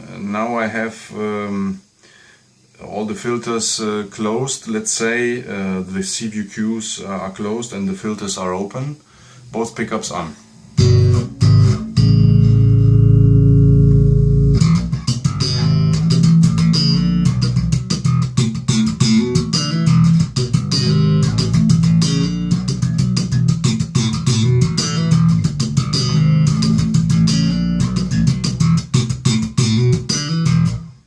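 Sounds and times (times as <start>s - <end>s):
electric bass guitar notes: 10.7s - 31.0s.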